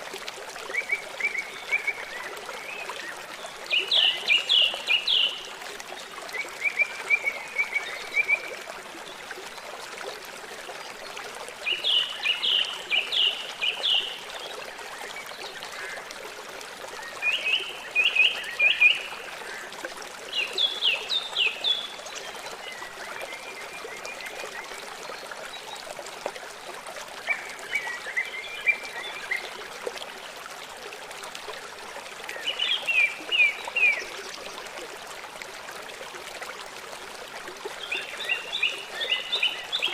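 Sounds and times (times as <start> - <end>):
water trickling: 0.0 - 39.9
songbird singing: 0.7 - 5.5, 11.6 - 14.3, 37.8 - 39.9.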